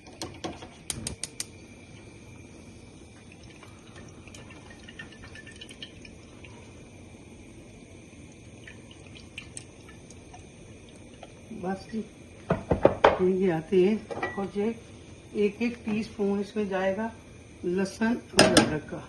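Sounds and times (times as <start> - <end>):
cooking oil being poured: 0.0 - 16.8
faint dripping: 1.3 - 6.9, 7.5 - 11.5.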